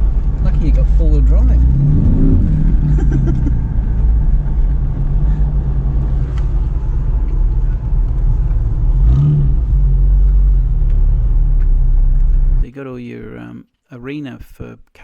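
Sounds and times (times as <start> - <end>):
vehicle engine drone from inside: 0.0 - 12.6.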